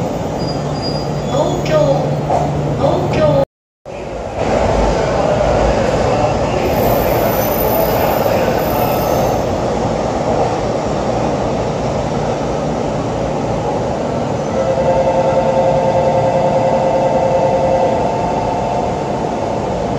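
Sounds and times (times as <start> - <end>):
train wheels rumbling on rails: 0.0 - 15.3
faint high squeal: 6.7 - 9.5.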